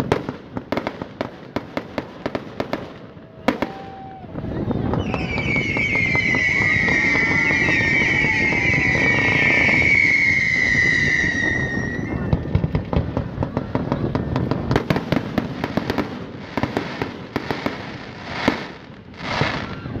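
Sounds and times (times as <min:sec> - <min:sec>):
firework pops and crackles: 0:00.0 - 0:20.0
firework whistle: 0:03.2 - 0:12.8, 0:15.6 - 0:20.0.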